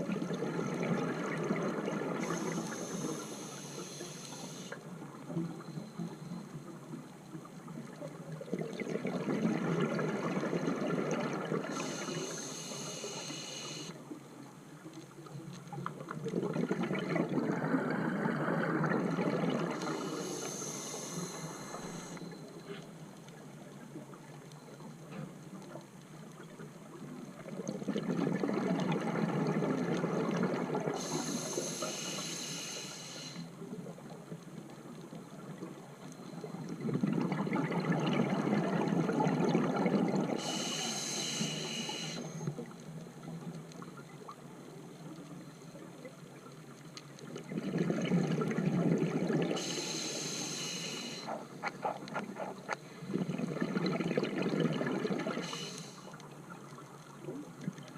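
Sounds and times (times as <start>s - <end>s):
regulator hiss: 2.2s - 4.8s, 11.7s - 14.0s, 19.8s - 22.6s, 31.0s - 33.6s, 40.4s - 42.7s, 49.6s - 51.6s, 55.4s - 56.2s
exhaled bubbles rushing: 16.3s - 19.8s, 36.8s - 40.4s, 47.4s - 49.6s, 51.3s - 55.4s.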